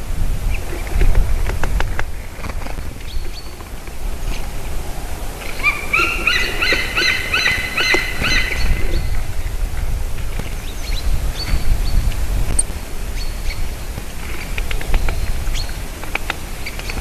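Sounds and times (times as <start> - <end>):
steady low rumble: 0.0 - 16.0
bird calling ringing notes: 5.4 - 9.2.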